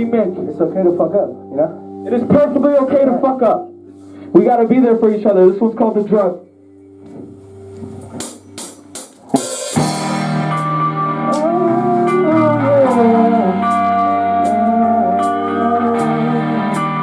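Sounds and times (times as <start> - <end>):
electric guitar chords: 0.0 - 4.8, 6.4 - 17.0
lead guitar bending notes: 6.4 - 17.0
cymbal crash: 8.0 - 12.3.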